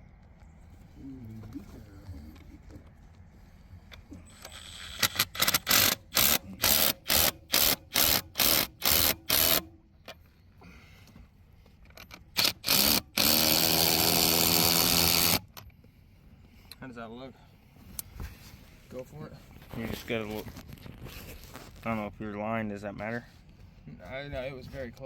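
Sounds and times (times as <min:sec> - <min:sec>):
impact wrench hammering: 0:04.8 - 0:09.7.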